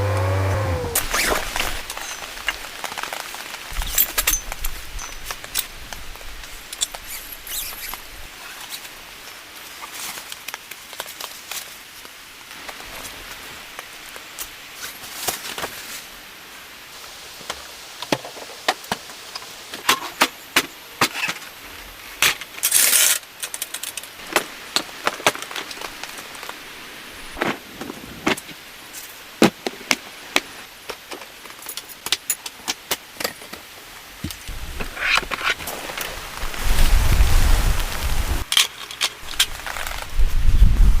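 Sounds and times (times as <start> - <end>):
rustling: 34.4 - 41.0
camping gear clicking and knocking: 38.4 - 40.1.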